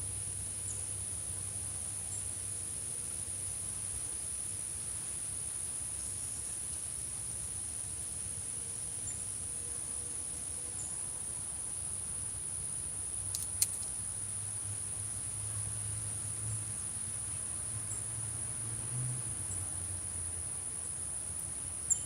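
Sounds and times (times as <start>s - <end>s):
crickets singing: 0.1s - 22.0s
sharp click: 13.3s - 13.9s.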